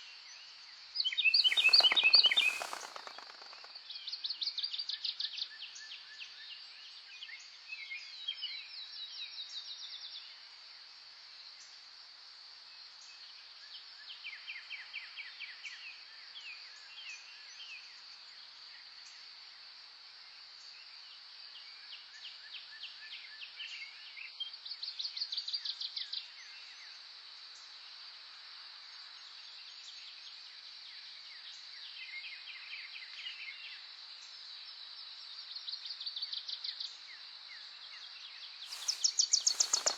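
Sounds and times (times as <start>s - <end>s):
birds singing trills: 1.3s - 3.6s, 38.7s - 39.9s.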